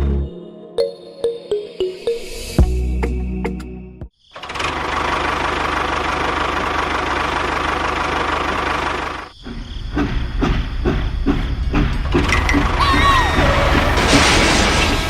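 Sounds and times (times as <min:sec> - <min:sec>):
irregular knocks and clatters: 0:09.4 - 0:12.8.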